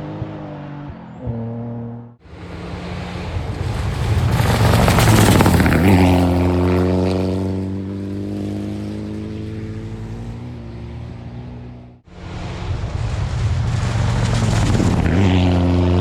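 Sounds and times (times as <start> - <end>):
engine sound: 0.0 - 16.0
rally car engine passing: 0.0 - 16.0
gravel spray: 2.4 - 6.8.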